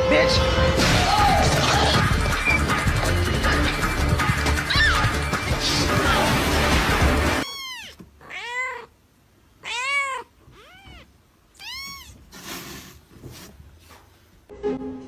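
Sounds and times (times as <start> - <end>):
cat meowing: 4.7 - 5.2, 7.4 - 9.0, 9.6 - 12.3.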